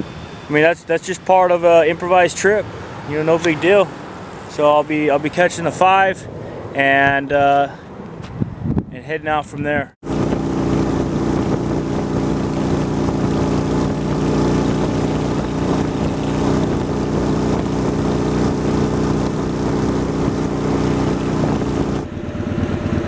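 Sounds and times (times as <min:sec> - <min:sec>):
wind and road noise: 0:00.0 - 0:23.0
motorcycle engine cruising: 0:10.0 - 0:23.0.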